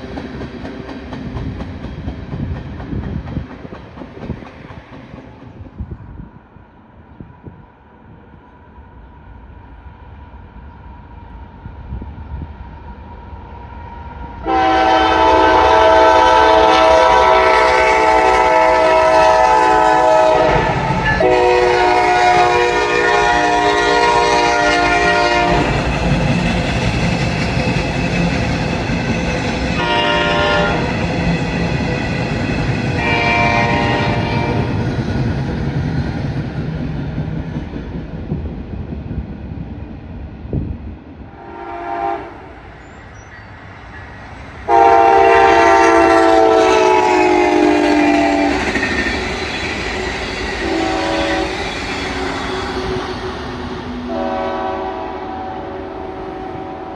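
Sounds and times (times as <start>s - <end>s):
locomotive rumble: 11.4s - 56.9s
train air horn blasts: 14.4s - 25.8s, 29.8s - 31.0s, 33.0s - 34.8s, 41.3s - 42.5s, 44.7s - 48.8s, 50.6s - 51.6s, 54.0s - 56.9s.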